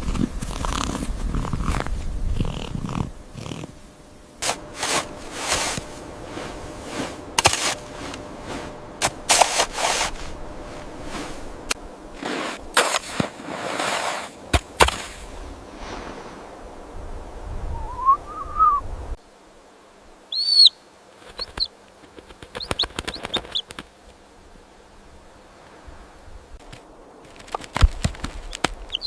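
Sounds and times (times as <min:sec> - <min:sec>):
rustling: 0:00.0 - 0:16.9, 0:21.0 - 0:29.0
rising and falling call: 0:17.7 - 0:18.8, 0:20.3 - 0:20.8
high bird chirps: 0:20.3 - 0:20.8.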